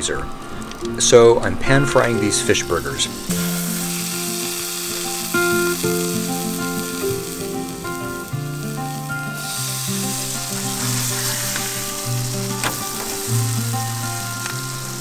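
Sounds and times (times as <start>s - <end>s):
background music: 0.0s - 15.0s
burgers sizzling in hot oil: 2.3s - 15.0s.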